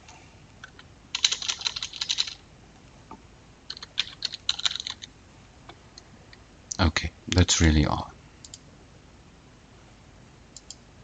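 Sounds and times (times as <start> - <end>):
computer keyboard typing: 0.6 - 2.4, 3.7 - 5.1.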